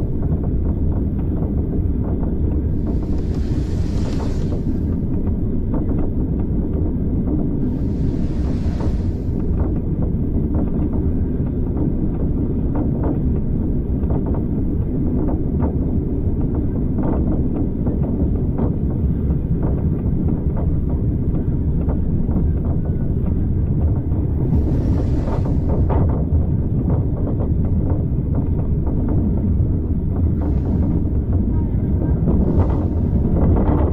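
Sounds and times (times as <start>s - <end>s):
brief hiss: 2.8s - 5.0s, 7.7s - 9.6s
railway carriage rumble: 7.6s - 10.3s, 24.3s - 33.9s.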